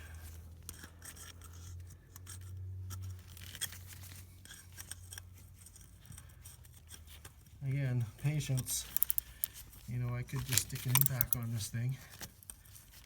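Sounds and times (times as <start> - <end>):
wrench clicking on metal: 8.4 - 9.6, 10.4 - 11.4.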